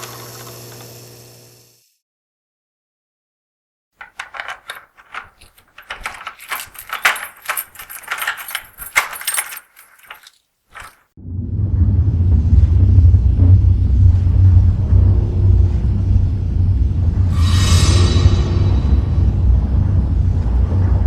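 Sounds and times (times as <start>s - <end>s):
small objects jangling and clinking: 4.0s - 11.0s.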